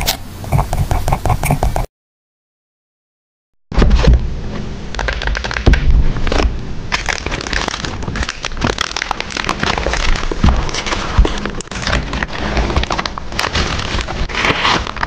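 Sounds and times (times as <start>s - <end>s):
paper and stickers rustling: 0.0s - 1.8s, 5.0s - 15.0s.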